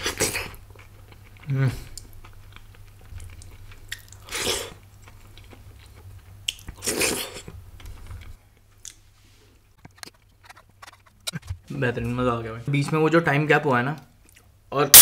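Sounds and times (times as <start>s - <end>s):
person chewing food: 0.0s - 9.0s.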